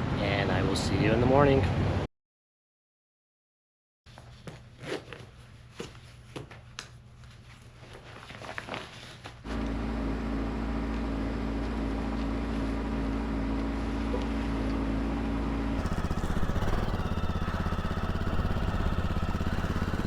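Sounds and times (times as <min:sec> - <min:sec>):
motorcycle engine idling: 0:15.8 - 0:20.0.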